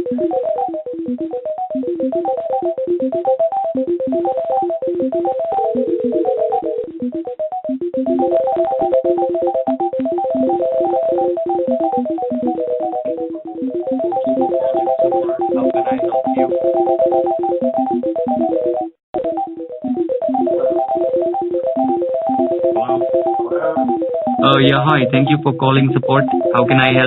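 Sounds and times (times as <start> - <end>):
long held electronic tone: 0.0 - 27.0
rapid electronic beeps: 0.0 - 27.0.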